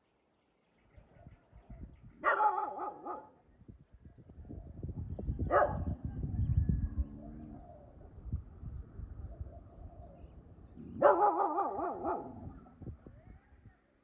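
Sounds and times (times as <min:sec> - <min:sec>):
dog barking and yelping: 0:02.2 - 0:03.3, 0:05.5 - 0:06.0, 0:10.8 - 0:12.7.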